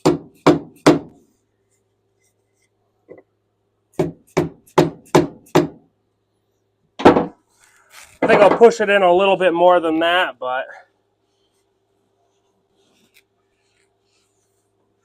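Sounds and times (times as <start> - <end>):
hammer striking wooden block: 0.0 - 1.1, 4.0 - 5.8.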